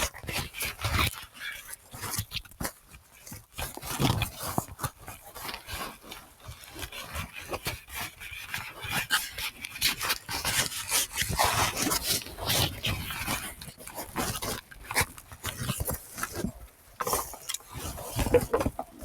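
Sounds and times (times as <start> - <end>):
handling noise on microphone: 16.3 - 19.0.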